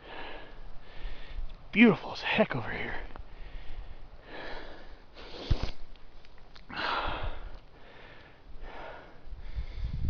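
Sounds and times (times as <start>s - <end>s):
man breathing heavily: 0.0s - 1.5s, 2.9s - 5.8s, 6.6s - 10.0s.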